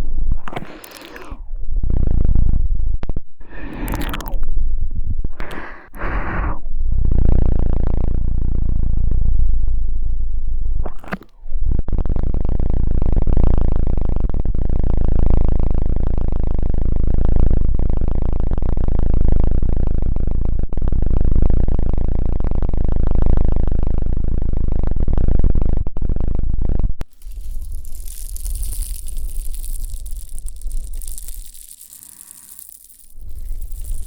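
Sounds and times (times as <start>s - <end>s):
bright hissing rustle: 27.0s - 34.0s.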